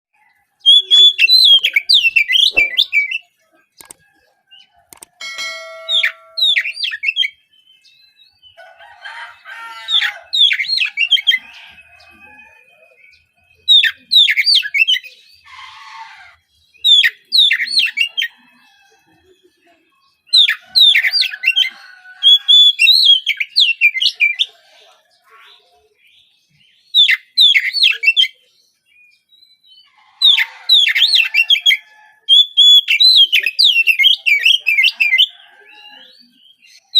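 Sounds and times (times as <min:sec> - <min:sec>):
bird singing whistled notes: 0:00.6 - 0:04.0, 0:05.7 - 0:08.2, 0:32.3 - 0:35.0
bird harsh rasping notes: 0:04.9 - 0:07.3.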